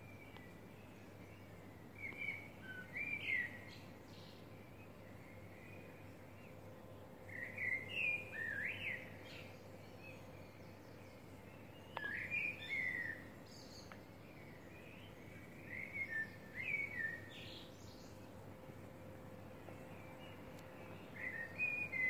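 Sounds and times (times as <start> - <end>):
faint steady hum: 0.0 - 22.0
songbird warbling: 11.9 - 14.0.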